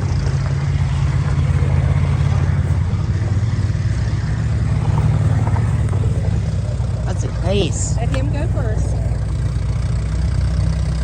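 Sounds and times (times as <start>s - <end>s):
tractor engine driving past: 0.0s - 11.0s.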